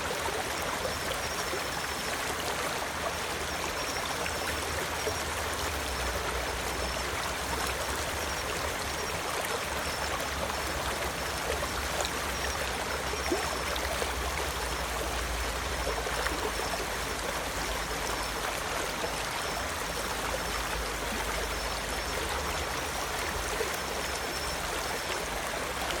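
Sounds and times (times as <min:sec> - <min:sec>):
stream flowing: 0:00.0 - 0:26.0.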